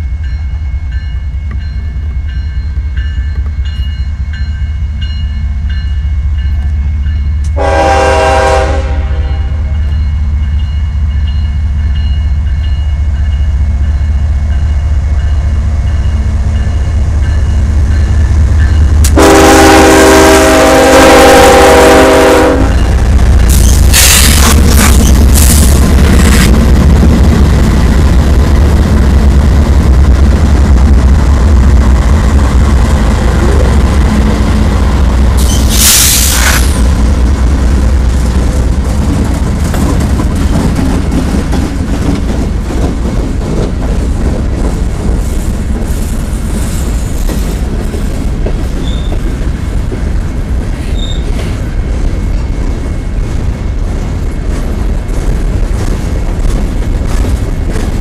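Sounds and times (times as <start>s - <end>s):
diesel locomotive rumble: 0.0s - 58.0s
steel wheels rolling on rail: 0.0s - 58.0s
loud hiss: 35.4s - 36.9s.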